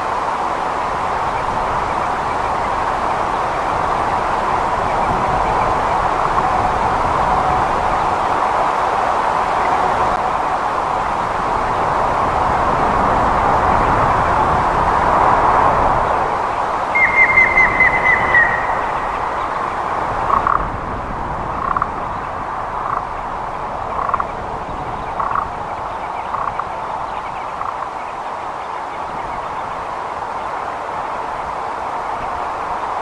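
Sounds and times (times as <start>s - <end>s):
steady background hiss: 0.0s - 33.0s
woodpecker whistled calls: 16.9s - 19.6s.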